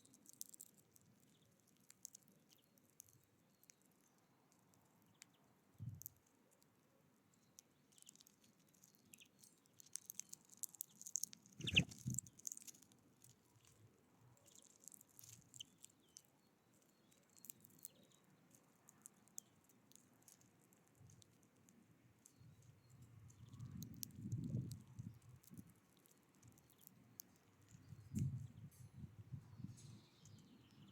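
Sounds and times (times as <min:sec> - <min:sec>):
birds pecking at a feeder: 0:00.0 - 0:30.9
short bird chirps: 0:11.6 - 0:12.2.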